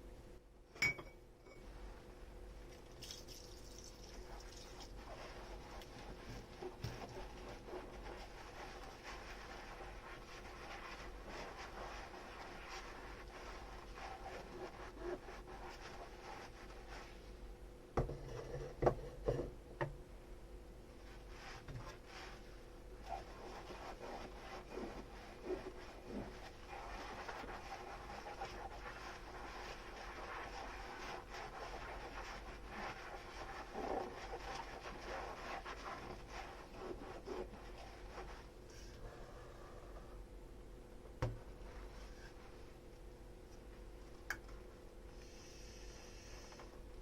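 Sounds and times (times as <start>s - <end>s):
dishes rubbing in washing: 2.7s - 17.3s, 21.0s - 38.6s.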